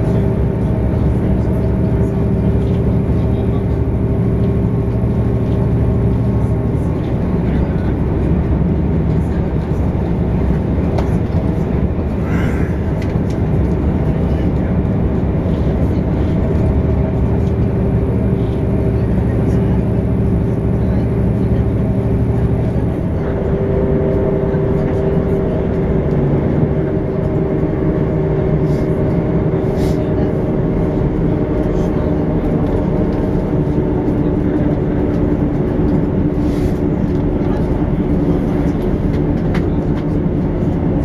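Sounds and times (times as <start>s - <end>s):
train motor hum: 0.0s - 41.0s
train wheels rumbling on track: 0.0s - 41.0s.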